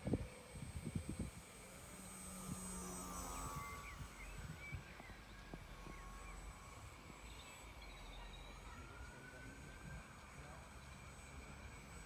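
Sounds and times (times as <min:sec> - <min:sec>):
wind rumble on microphone: 0:00.0 - 0:06.1
model aeroplane motor whine: 0:00.0 - 0:12.0.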